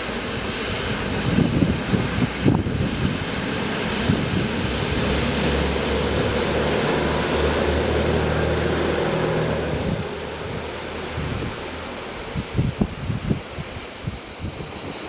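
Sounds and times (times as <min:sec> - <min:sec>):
train passing with loud rumble: 0:00.0 - 0:15.0
wind thumps on microphone: 0:00.9 - 0:05.1, 0:09.6 - 0:15.0.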